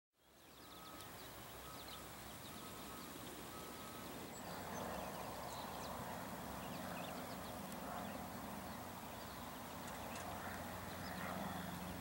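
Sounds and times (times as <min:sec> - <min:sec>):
small birds chirping: 0:00.2 - 0:12.0
steady background noise: 0:00.2 - 0:12.0.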